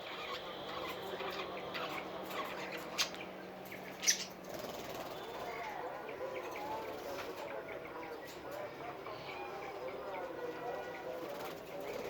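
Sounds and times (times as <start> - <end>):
parrots chirping and chattering: 0.0 - 5.7.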